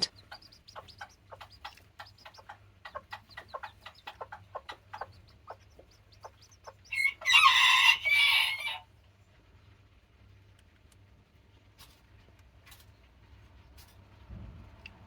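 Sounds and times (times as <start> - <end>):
chicks peeping: 0.0 - 8.8
rooster crowing: 6.9 - 8.8.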